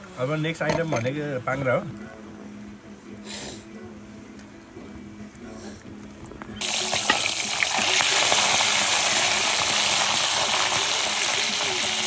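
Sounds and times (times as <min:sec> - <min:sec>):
hot oil sizzling and crackling: 0:06.6 - 0:12.0.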